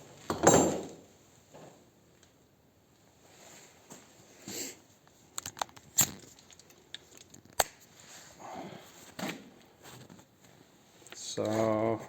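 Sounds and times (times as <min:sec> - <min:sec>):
metal tools clinking: 0:00.3 - 0:01.0.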